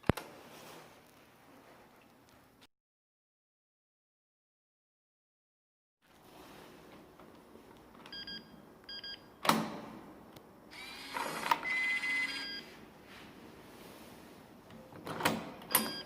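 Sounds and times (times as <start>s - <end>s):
door lock double beeps: 8.1s - 9.5s, 15.6s - 16.0s.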